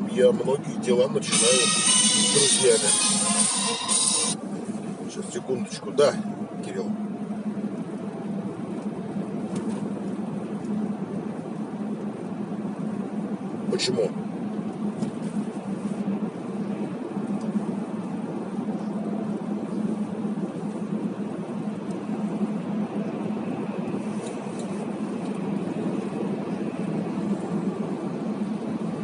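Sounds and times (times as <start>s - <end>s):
car engine: 0.0s - 29.0s
road noise: 0.0s - 29.0s.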